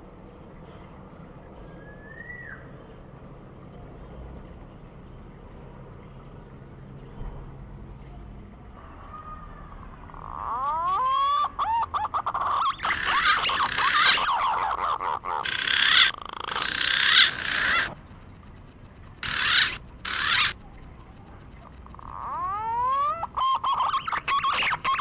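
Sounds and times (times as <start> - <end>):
harsh dense bird calling: 10.1 - 25.0.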